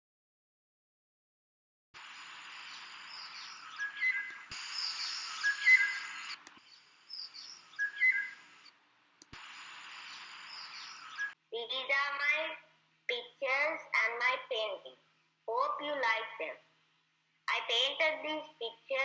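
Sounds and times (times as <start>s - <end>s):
background hiss: 2.0s - 19.0s
bird whistled notes and chirps: 2.1s - 8.7s, 10.0s - 11.4s.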